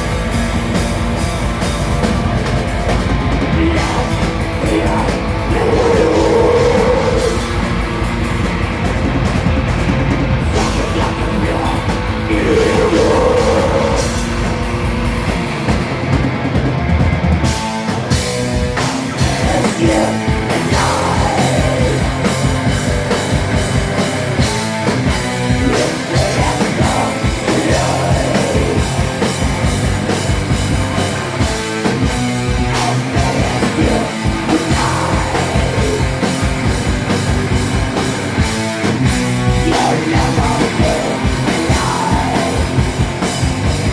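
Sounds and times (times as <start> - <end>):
drum kit: 0.0 - 43.9
guitar and bass: 0.0 - 43.9
live rock band playing: 0.0 - 43.9
person singing: 3.4 - 7.6, 10.5 - 14.2, 19.0 - 22.4, 25.6 - 29.0, 32.8 - 36.2, 39.6 - 42.8.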